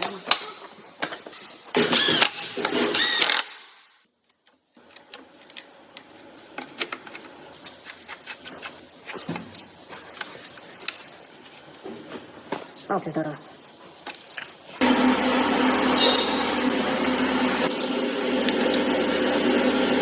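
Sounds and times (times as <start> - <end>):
power tool whining: 14.8 - 20.0.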